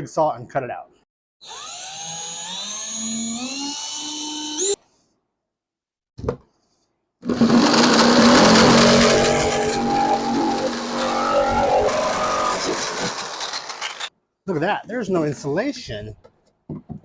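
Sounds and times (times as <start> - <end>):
power drill whining: 1.4 - 4.8, 7.2 - 14.1
jigsaw cutting plastic: 7.2 - 14.1.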